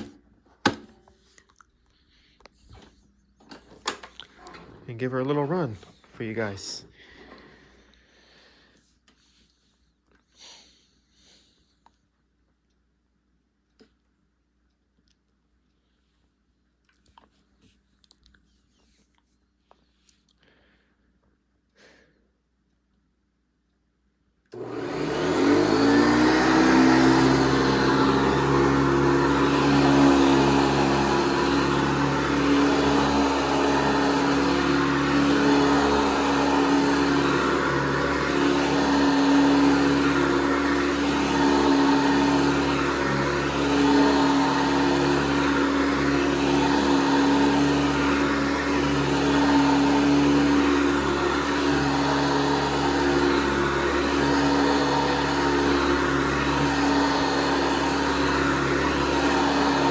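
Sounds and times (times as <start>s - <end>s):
vacuum cleaner switch on: 0.0s - 1.0s, 24.5s - 59.9s
vacuum cleaner motor humming: 24.5s - 59.9s.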